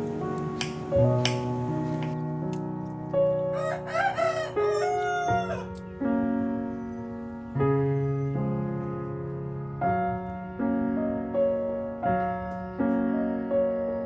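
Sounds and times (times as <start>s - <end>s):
soft piano music: 0.0s - 14.0s
rooster crowing: 3.5s - 5.8s.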